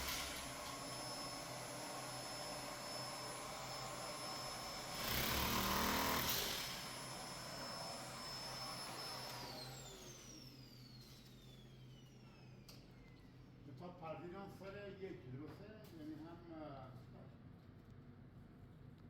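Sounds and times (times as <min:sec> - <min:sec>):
small electric motor whining: 0:00.0 - 0:11.8.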